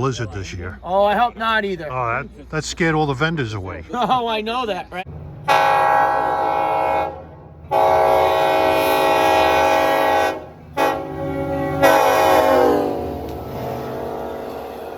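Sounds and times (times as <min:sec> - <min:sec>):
train air horn blasts: 0:05.4 - 0:14.6.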